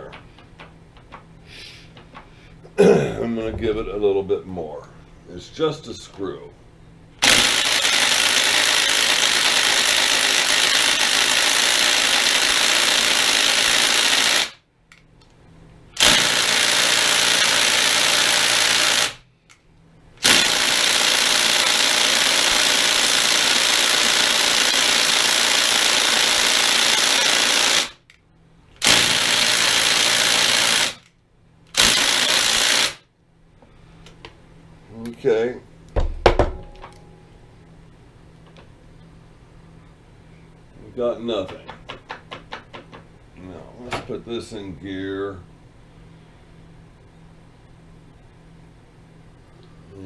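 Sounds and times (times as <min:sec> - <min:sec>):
impact wrench hammering: 0:07.2 - 0:14.5, 0:16.0 - 0:19.2, 0:20.2 - 0:27.9, 0:28.8 - 0:31.0, 0:31.7 - 0:32.9.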